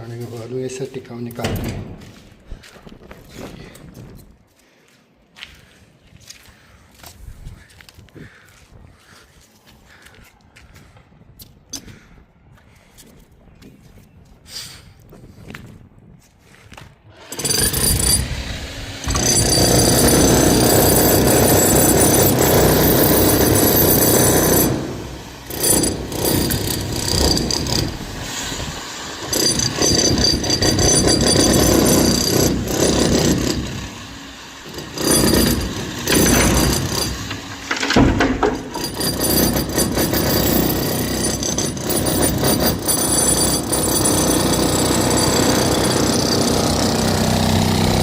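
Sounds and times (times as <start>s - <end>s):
demolition hammer chiselling concrete: 17.2s - 48.0s.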